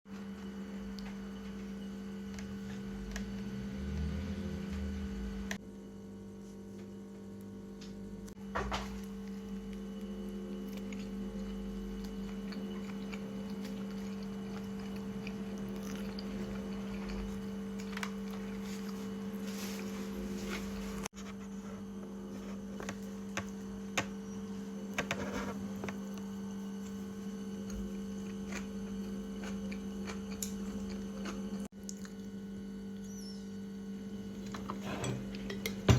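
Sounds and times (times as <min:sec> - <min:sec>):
electrical hum: 0:00.1 - 0:35.9
biting and chewing: 0:09.1 - 0:19.0, 0:27.6 - 0:33.2.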